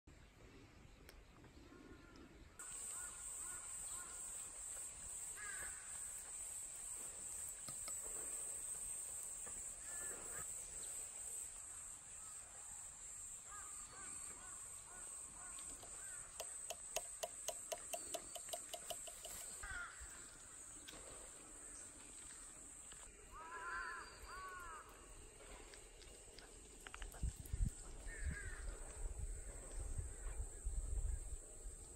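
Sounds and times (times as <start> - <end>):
wild birds calling: 1.6 - 6.5, 9.6 - 10.6, 13.4 - 22.0, 23.3 - 25.4.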